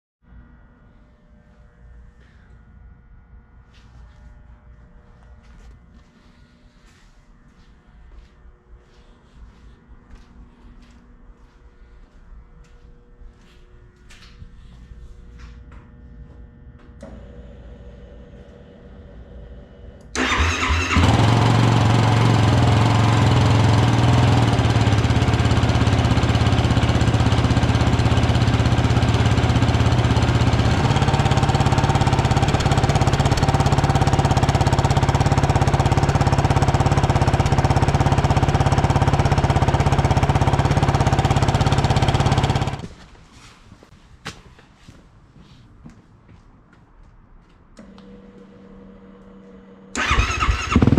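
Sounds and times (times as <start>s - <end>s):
engine starting and idling: 20.0s - 42.9s, 47.8s - 50.9s.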